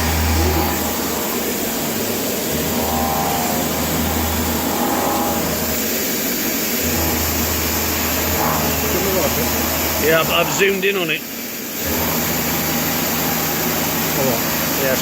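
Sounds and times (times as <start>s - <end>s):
low machine hum: 0.0s - 15.0s
milling machine cutting steel: 0.0s - 15.0s.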